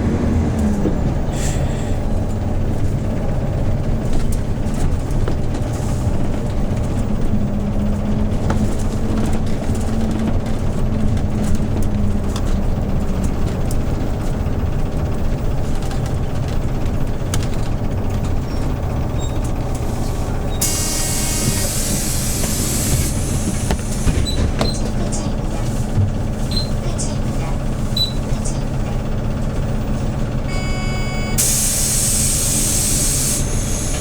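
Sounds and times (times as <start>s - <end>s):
bus engine droning: 0.0s - 34.0s
compressed air hiss: 20.6s - 24.0s, 31.4s - 34.0s.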